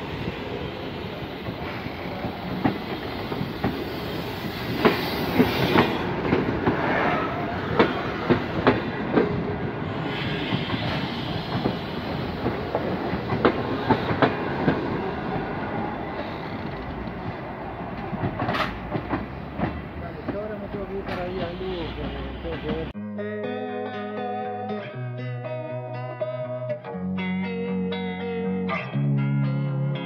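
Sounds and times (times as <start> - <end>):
train rumble: 0.0 - 23.0
train wheels clacking over rail joints: 1.3 - 22.9.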